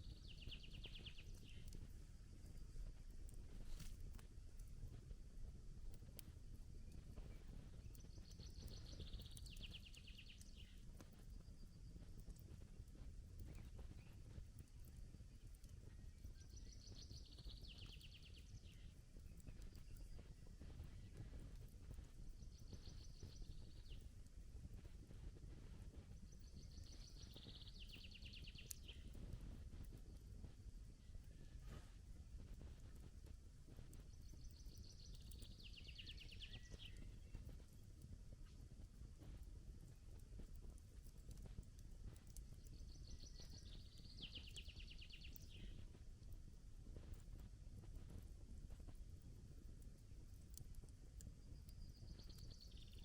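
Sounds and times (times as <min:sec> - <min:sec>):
faint songbird singing: 0:00.0 - 0:01.8, 0:06.2 - 0:12.4, 0:13.4 - 0:24.1, 0:26.1 - 0:29.2, 0:34.0 - 0:37.8, 0:41.3 - 0:45.8, 0:51.3 - 0:53.0
campfire crackling: 0:00.1 - 0:28.0, 0:28.6 - 0:53.0.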